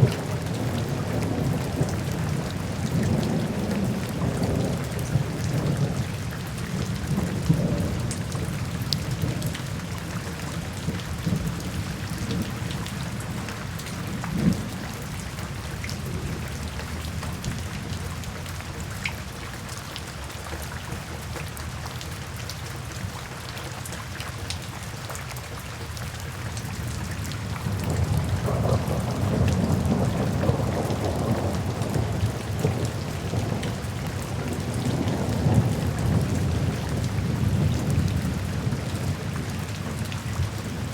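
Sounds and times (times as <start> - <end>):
low rolling thunder: 0.0 - 18.4, 27.4 - 40.9
steady rain falling: 0.0 - 40.9.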